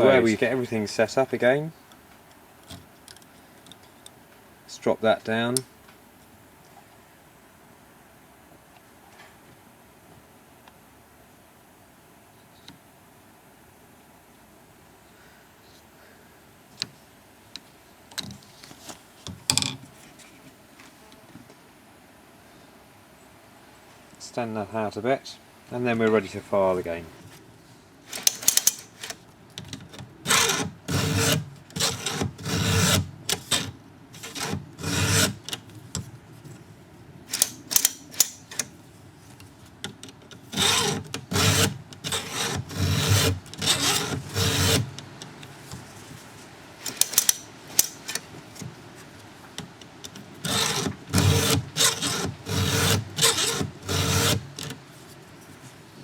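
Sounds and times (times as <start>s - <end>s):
file rasping on chainsaw chain: 30.3s - 35.6s, 40.5s - 45.0s, 50.4s - 54.7s.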